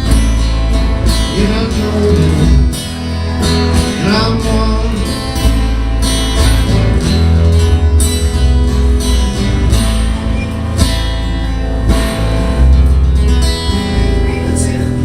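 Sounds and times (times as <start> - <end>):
acoustic guitar strumming: 0.0 - 15.0
deep bass notes: 0.0 - 15.0.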